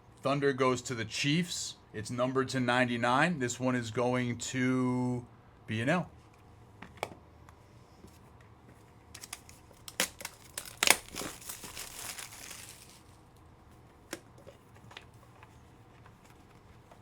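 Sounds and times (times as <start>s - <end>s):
foil wrapper tearing and crackling: 9.2s - 13.3s
wrapper rustling: 9.2s - 13.3s.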